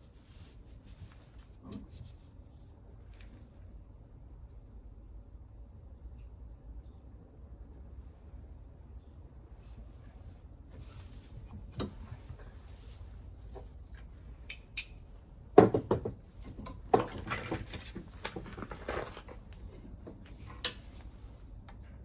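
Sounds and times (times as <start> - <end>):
metal tools clinking: 14.4 - 15.0, 16.6 - 19.2.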